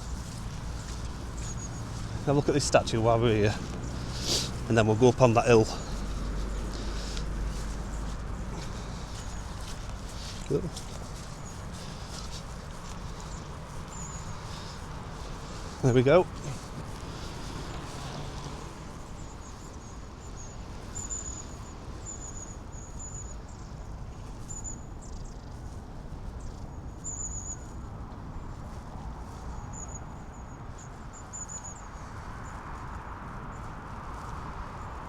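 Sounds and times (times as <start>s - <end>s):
high thin chirping calls: 0.0s - 23.7s
low outdoor rumble: 0.0s - 24.0s.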